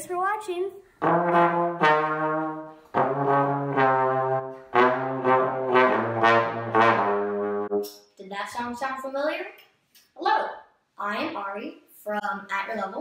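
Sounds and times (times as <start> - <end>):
trombone playing slow tune: 1.0 - 7.8.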